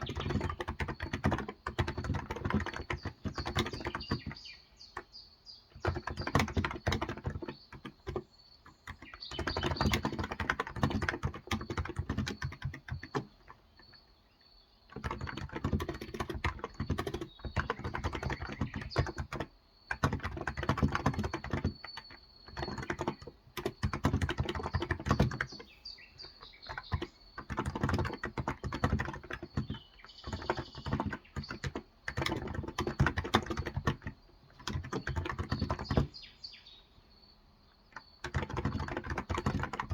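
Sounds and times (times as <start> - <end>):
soft keyboard typing: 0.0 - 36.3, 37.8 - 39.9.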